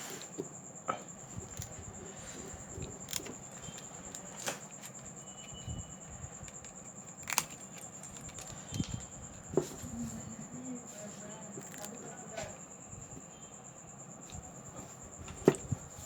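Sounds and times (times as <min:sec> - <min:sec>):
faint high-pitched whine: 0:00.0 - 0:16.0
small tools clicking and tapping: 0:01.4 - 0:05.6, 0:06.4 - 0:09.7, 0:11.5 - 0:12.5.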